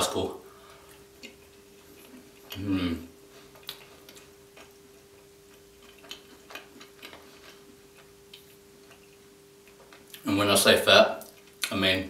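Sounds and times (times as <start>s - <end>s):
faint steady hum: 0.0s - 12.0s
chewing mouth sounds: 3.5s - 10.2s.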